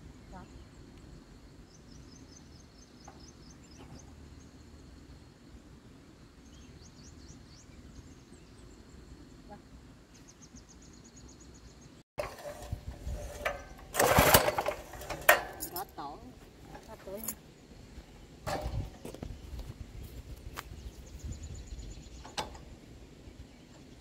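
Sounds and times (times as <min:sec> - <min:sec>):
bird chirping trills: 0:01.6 - 0:04.8, 0:20.7 - 0:24.0.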